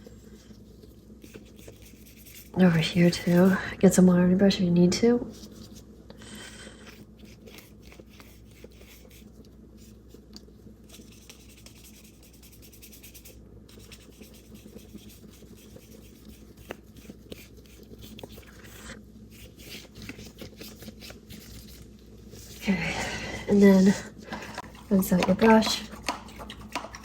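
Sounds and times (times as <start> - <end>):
paintbrush scratching on paper: 0.0 - 3.6, 6.8 - 10.2, 10.9 - 22.7
low steady hum: 0.0 - 27.0.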